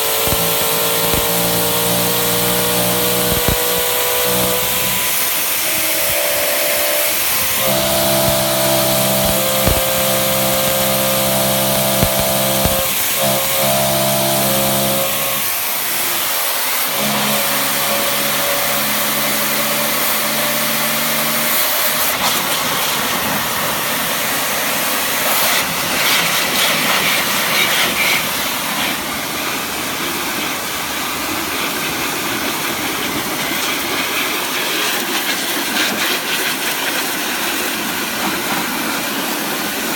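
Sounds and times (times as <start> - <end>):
pressure washer jet on tyre tread: 0.0 - 19.5.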